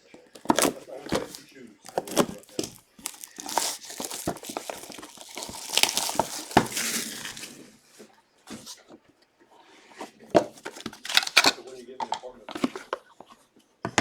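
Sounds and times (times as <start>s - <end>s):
packaging crinkling and rustling: 0.2s - 8.0s, 10.4s - 11.6s.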